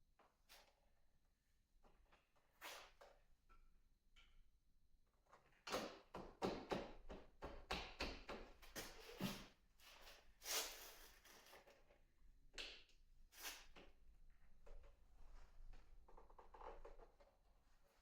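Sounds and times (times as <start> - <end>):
scrape: 2.6 - 3.0, 9.0 - 11.8, 13.4 - 13.7.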